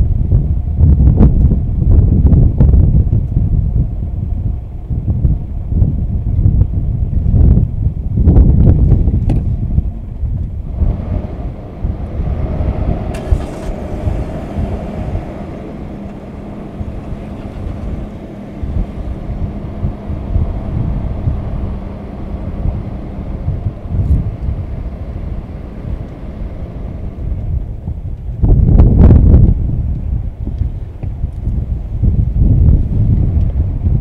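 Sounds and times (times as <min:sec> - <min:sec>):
vehicle engine low rumble: 0:00.0 - 0:34.0.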